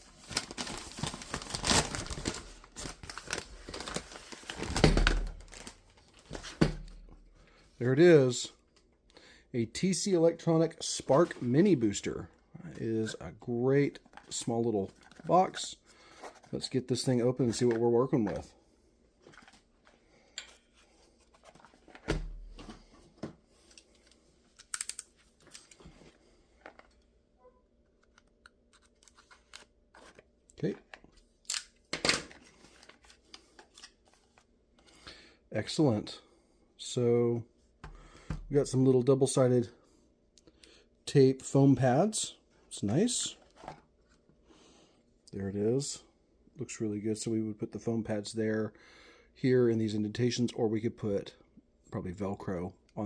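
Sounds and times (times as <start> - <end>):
packaging crinkling and tearing: 0.1 - 6.3.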